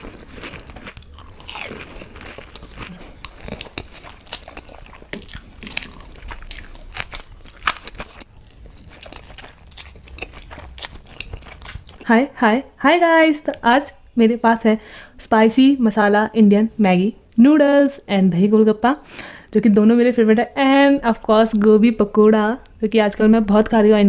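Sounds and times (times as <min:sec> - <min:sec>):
person chewing crunchy food: 0:00.0 - 0:12.1.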